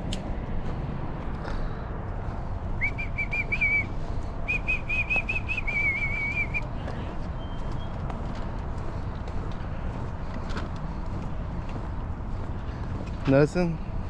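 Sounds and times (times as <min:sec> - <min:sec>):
steady low rumble: 0:00.0 - 0:14.0
bird whistling song: 0:02.8 - 0:06.7, 0:07.3 - 0:08.0.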